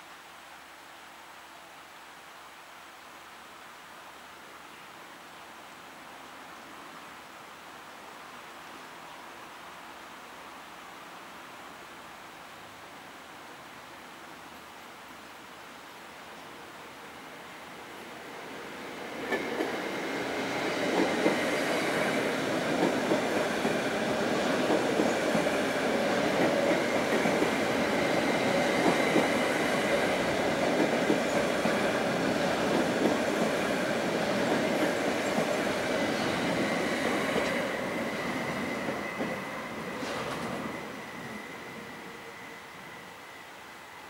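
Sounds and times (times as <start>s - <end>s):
train wheels rumbling on rails: 18.1s - 43.4s.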